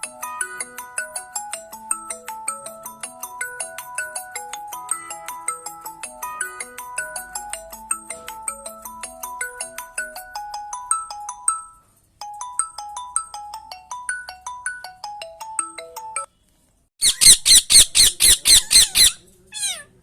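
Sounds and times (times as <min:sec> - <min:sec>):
phone ringtone marimba melody: 0:00.0 - 0:16.3
shrill repeated calls: 0:17.0 - 0:20.0.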